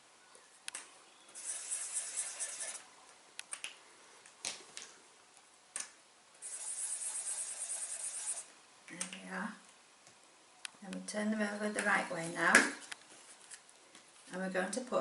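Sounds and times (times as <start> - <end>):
pen scratching on paper plate: 1.4 - 2.8, 6.4 - 8.5.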